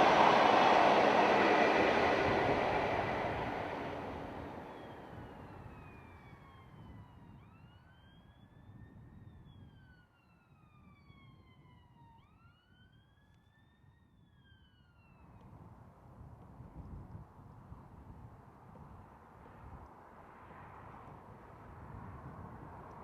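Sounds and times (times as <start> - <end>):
passing train rumble: 0.0 - 5.4
faint wailing siren: 0.0 - 15.3.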